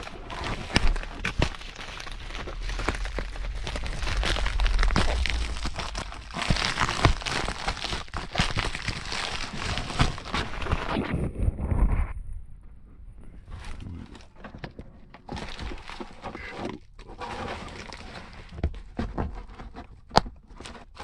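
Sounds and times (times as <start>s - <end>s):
packaging crinkling and rustling: 0.0s - 11.5s, 13.4s - 21.0s.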